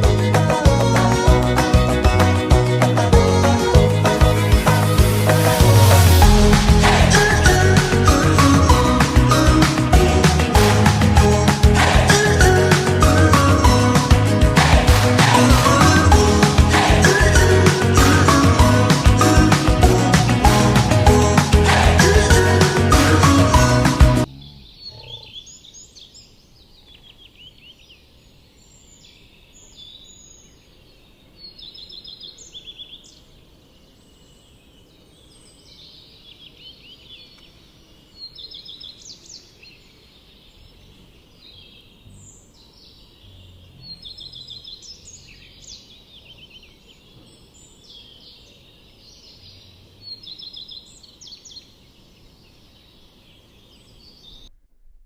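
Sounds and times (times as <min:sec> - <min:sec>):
small birds singing trills: 0:24.2 - 0:54.5.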